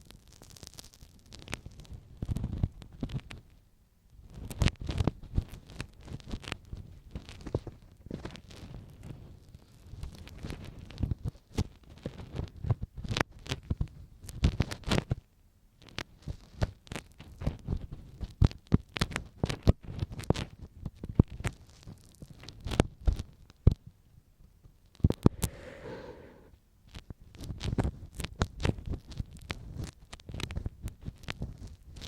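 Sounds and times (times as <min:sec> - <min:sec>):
ear pick scraping microphone: 0:25.1 - 0:26.5.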